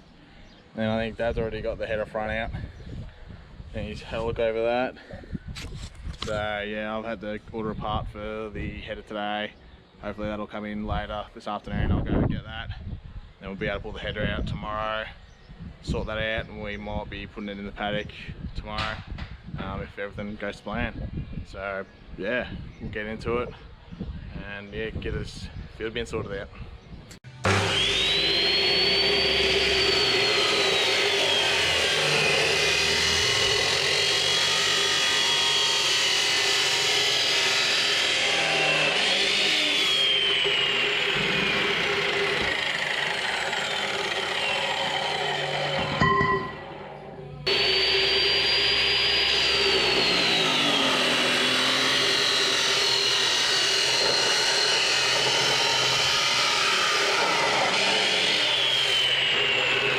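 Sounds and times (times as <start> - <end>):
power tool cutting steel tubing: 27.3 - 59.9.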